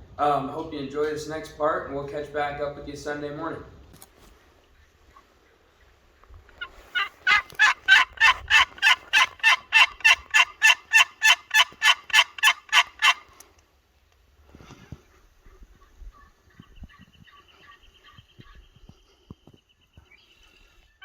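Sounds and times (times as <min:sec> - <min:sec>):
turkey yelping: 0:06.5 - 0:13.3.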